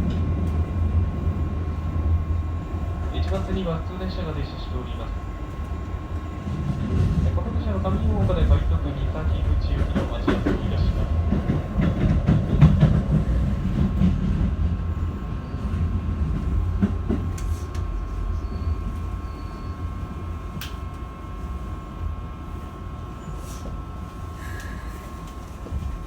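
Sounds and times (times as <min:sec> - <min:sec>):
train wheels rumbling on rails: 0:00.0 - 0:21.1
train high whine: 0:00.0 - 0:26.0
clacks over rail joints: 0:09.8 - 0:13.1.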